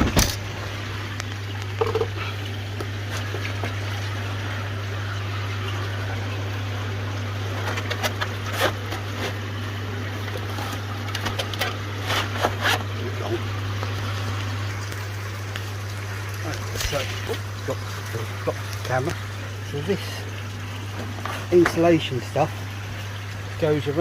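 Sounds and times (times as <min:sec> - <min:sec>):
pond filter humming: 0:00.0 - 0:24.0
water trickling: 0:00.0 - 0:24.0.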